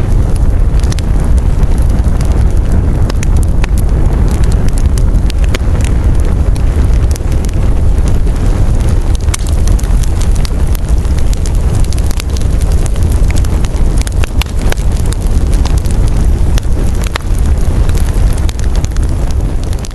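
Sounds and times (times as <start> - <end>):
campfire crackling and popping: 0.0 - 19.9
wind rumble on microphone: 0.0 - 19.9.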